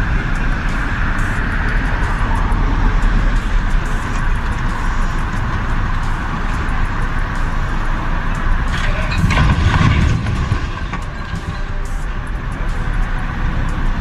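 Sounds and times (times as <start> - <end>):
heavy vehicle engine rumbling: 0.0 - 14.0
loud rattling and clattering: 8.6 - 12.3.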